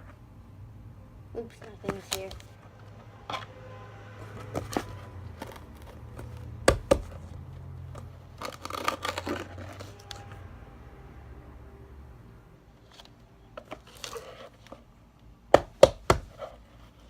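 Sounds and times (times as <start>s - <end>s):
low steady hum: 0.0s - 17.0s
packaging crinkling: 4.4s - 10.2s.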